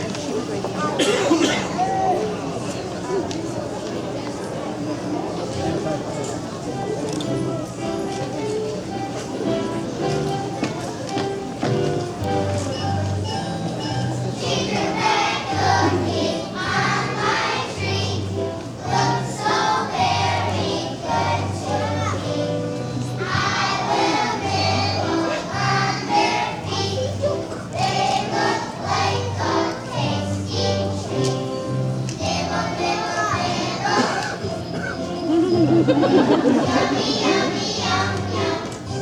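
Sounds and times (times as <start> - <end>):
instrumental accompaniment: 6.6 - 39.0
children's choir singing: 12.7 - 39.0.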